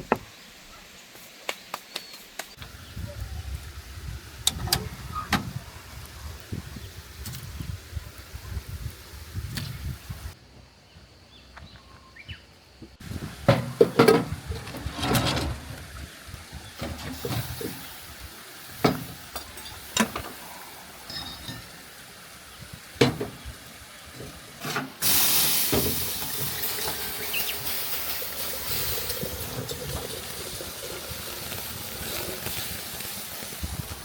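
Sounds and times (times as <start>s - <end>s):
water running: 13.0s - 34.0s
kitchenware clinking: 21.1s - 21.9s.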